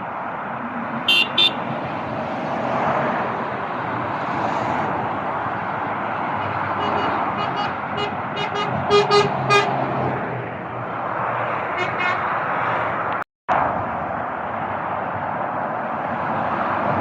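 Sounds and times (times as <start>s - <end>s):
road traffic passing: 0.0s - 17.0s
vehicle horn toots: 1.1s - 1.6s, 6.8s - 9.8s, 11.8s - 12.3s.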